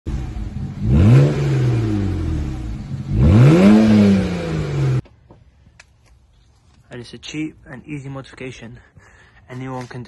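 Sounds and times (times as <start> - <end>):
car engine revving: 0.1 - 5.0.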